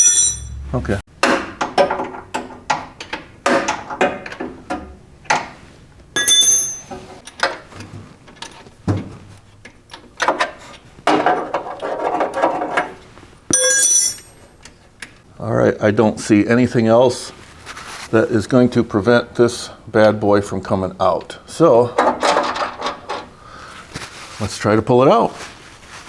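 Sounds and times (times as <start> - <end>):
ringing metal clink: 0.0 - 0.6, 6.2 - 7.0, 13.5 - 14.4.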